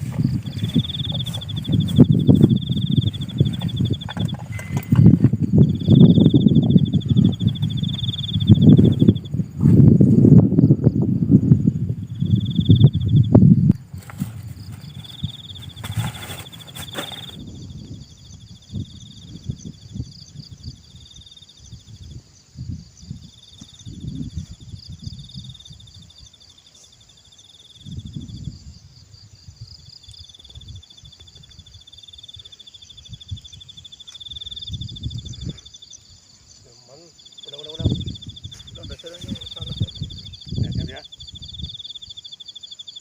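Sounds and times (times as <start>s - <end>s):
low bumps and rustling: 0.0s - 10.9s, 11.6s - 17.6s
insects chirring: 0.0s - 43.0s.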